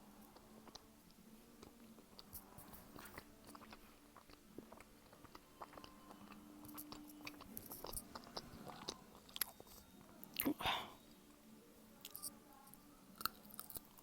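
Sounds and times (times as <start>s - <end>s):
chewing mouth clicks and smacks: 1.6s - 10.6s.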